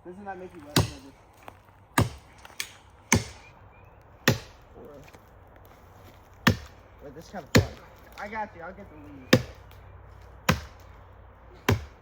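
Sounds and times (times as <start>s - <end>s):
blade chopping wood: 0.6s - 1.1s, 2.0s - 3.4s, 4.2s - 4.6s, 6.4s - 6.8s, 7.5s - 7.9s, 9.3s - 9.6s, 10.5s - 10.9s, 11.7s - 12.0s.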